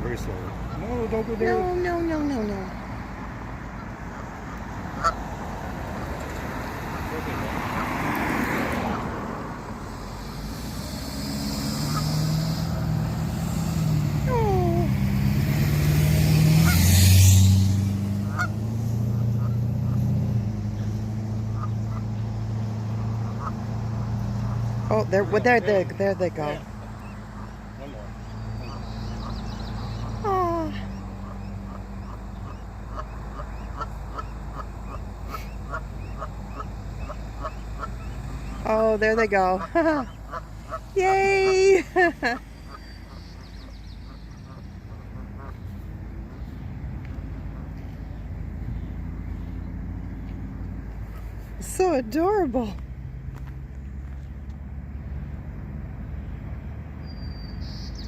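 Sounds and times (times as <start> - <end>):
ducks calling: 0.0 - 52.7
vehicle engine running: 0.0 - 57.0.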